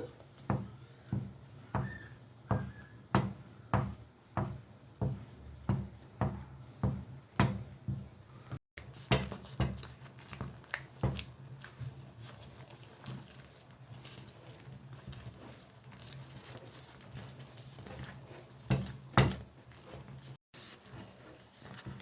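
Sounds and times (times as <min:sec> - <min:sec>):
wooden stick knocking cooking pot: 0:00.0 - 0:08.1, 0:18.6 - 0:19.5.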